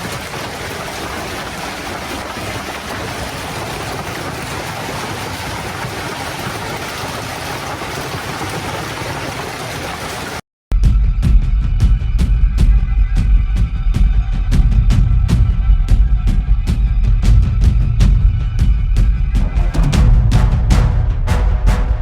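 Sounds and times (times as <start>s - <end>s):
heavy rain: 0.0s - 10.4s
running water: 0.0s - 10.4s.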